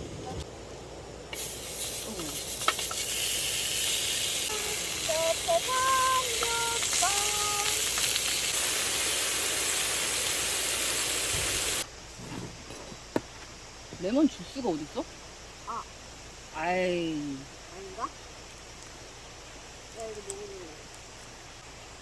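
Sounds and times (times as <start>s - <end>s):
food sizzling on a hot pan: 1.4s - 11.9s.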